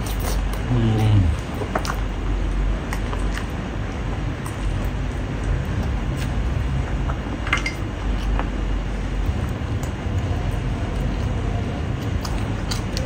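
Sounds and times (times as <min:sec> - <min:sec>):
person chewing with lip smacks: 0:00.0 - 0:02.0, 0:09.2 - 0:13.0.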